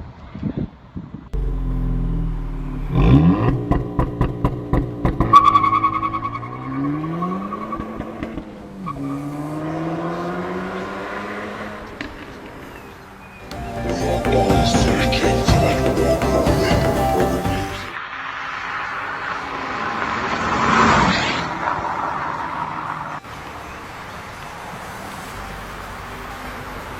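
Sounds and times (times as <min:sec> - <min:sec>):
exhaust cracks: 0:01.4 - 0:12.7
car engine revving: 0:01.4 - 0:12.8, 0:13.5 - 0:23.2.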